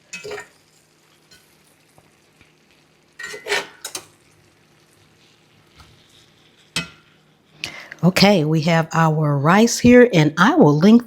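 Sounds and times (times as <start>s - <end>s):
utensil scraping a skillet: 0.0s - 7.6s
faint steady sizzle: 0.0s - 11.0s.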